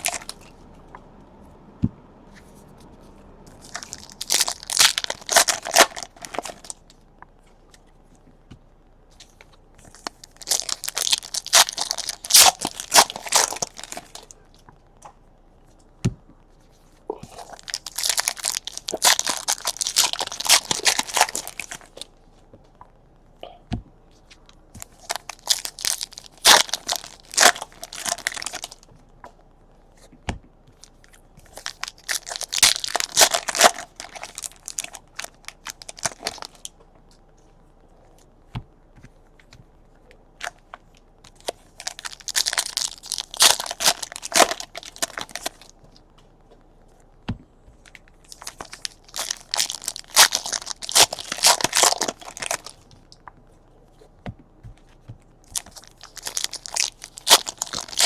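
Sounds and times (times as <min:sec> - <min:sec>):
plastic wrapping tearing and crinkling: 0:00.0 - 0:00.5, 0:03.5 - 0:07.0, 0:09.2 - 0:14.4, 0:17.2 - 0:22.1, 0:24.3 - 0:28.9, 0:30.8 - 0:36.8, 0:41.3 - 0:46.0, 0:47.8 - 0:53.3, 0:55.4 - 0:58.0.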